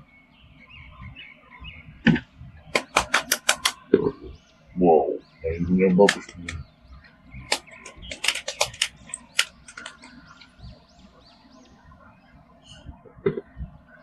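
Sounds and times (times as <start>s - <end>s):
plastic toy clicking: 2.8s - 3.8s, 7.5s - 10.1s.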